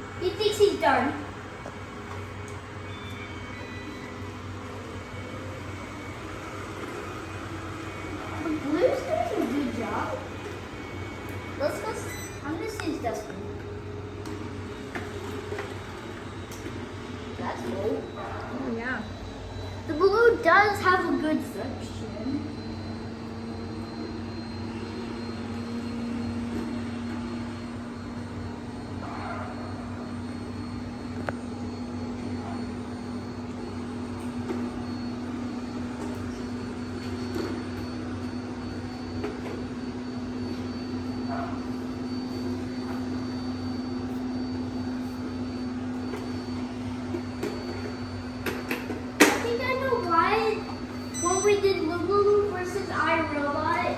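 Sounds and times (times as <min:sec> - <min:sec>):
robot vacuum motor hum: 0:00.0 - 0:53.9.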